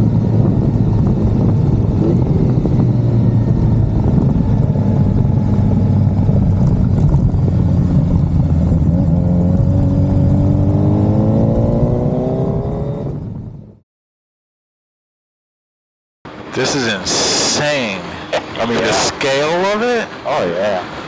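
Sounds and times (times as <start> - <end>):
motorcycle engine accelerating: 0.0 - 13.8.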